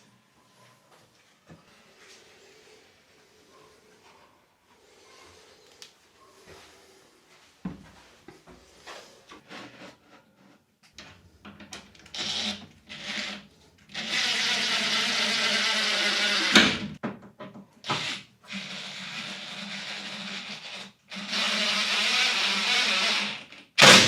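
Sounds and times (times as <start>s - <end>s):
small electric power tool running: 14.0s - 16.8s, 19.5s - 24.0s.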